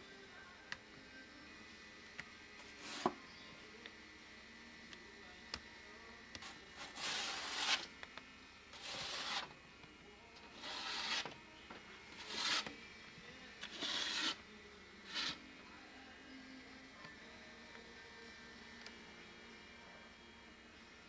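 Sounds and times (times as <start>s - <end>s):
scraping strokes: 6.8s - 7.9s, 8.7s - 9.5s, 10.5s - 11.4s, 12.1s - 12.8s, 13.6s - 14.4s, 15.1s - 15.4s.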